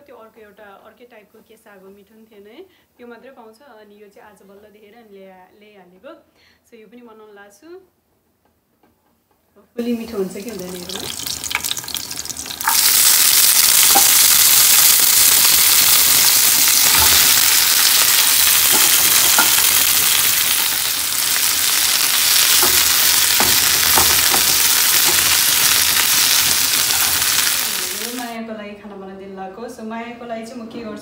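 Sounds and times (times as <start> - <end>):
greens sizzling in hot oil: 9.9 - 28.4.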